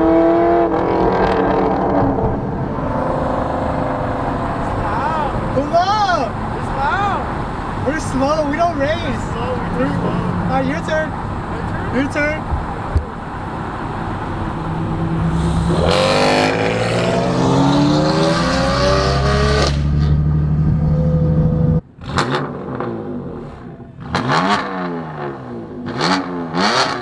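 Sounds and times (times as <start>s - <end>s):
sports car engine accelerating: 0.0s - 5.6s, 14.0s - 27.0s.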